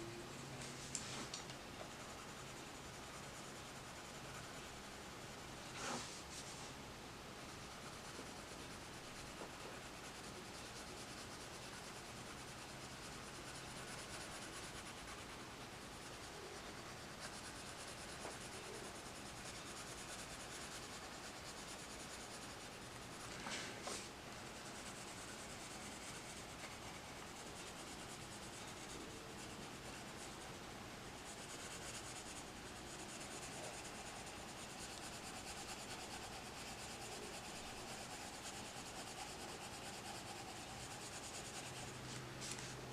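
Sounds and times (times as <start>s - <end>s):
pencil scratching on paper: 1.1s - 6.8s, 7.4s - 42.8s
scrape or tap: 5.8s - 6.2s, 23.4s - 24.1s.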